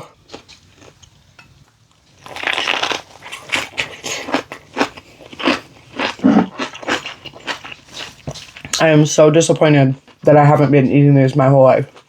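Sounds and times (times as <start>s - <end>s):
wet mouth chewing: 2.2s - 8.8s.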